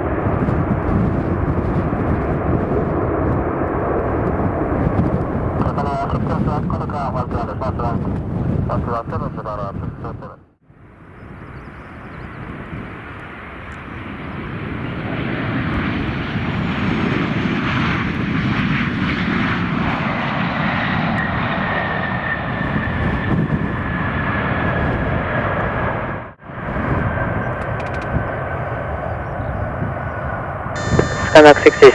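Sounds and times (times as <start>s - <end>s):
jet engines roaring: 12.0s - 31.9s
high whine falling in pitch: 30.8s - 31.9s.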